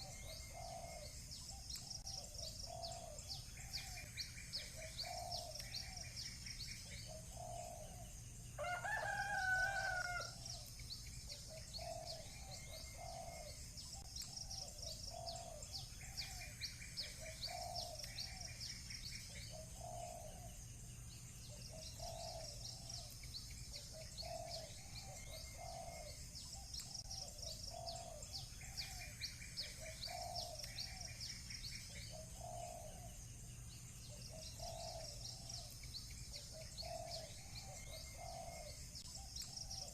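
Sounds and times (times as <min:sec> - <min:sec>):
small birds chirping: 0:00.0 - 0:39.9
rooster crowing: 0:08.6 - 0:10.4.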